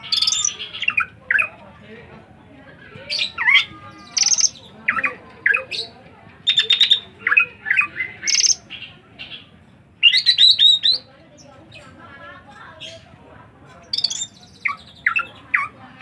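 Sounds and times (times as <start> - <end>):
bird chattering shrill calls: 0.0 - 1.5, 3.1 - 9.4, 10.0 - 11.1, 13.8 - 15.8.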